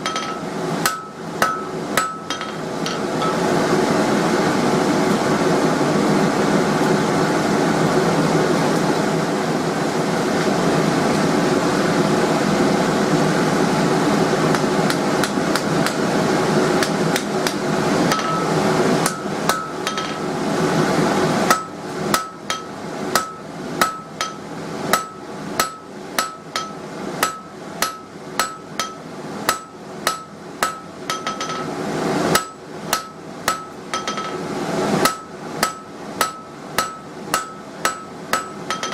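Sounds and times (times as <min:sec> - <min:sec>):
hammer striking hot steel on anvil: 0:00.0 - 0:03.6, 0:14.5 - 0:16.1, 0:16.8 - 0:20.3, 0:21.4 - 0:38.9.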